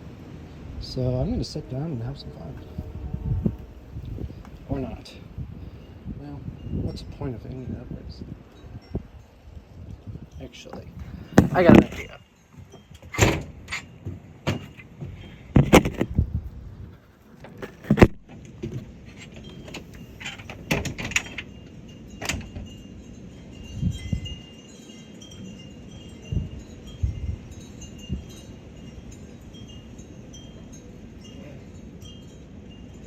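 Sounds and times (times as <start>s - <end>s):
sharp knocks and bumps: 12.7s - 16.2s
high tinkling chimes: 21.3s - 33.0s.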